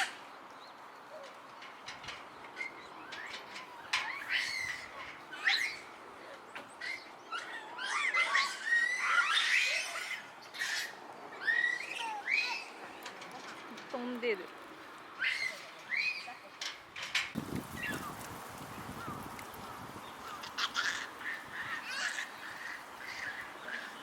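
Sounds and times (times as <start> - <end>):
high chirping animal calls: 6.8 - 12.9.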